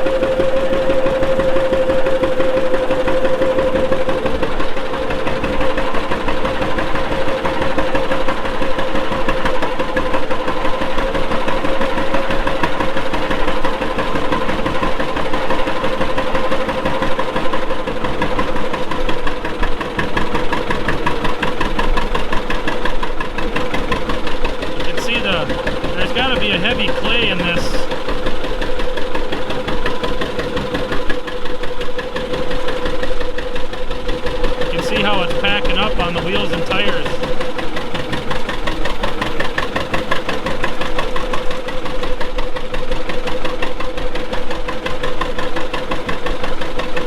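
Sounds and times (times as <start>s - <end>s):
steady whine: 0.0s - 19.1s, 24.8s - 28.2s, 34.4s - 39.8s
tractor engine running: 0.0s - 47.0s.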